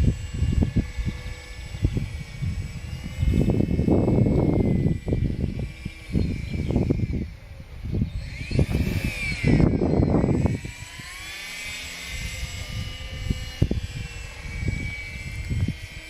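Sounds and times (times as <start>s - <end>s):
model airplane motor whining: 0.0s - 16.0s
wind buffeting microphone: 0.0s - 16.0s.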